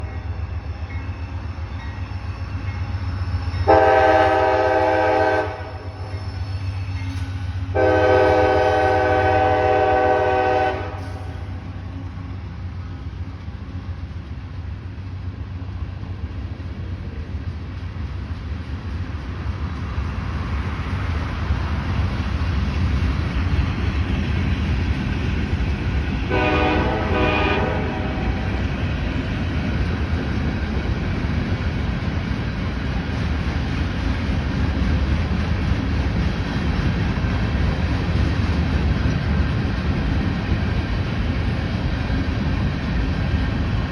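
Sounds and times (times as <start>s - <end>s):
train rumble: 0.0s - 43.9s
locomotive air horn blasts: 3.7s - 5.9s, 7.7s - 11.6s, 26.3s - 28.4s.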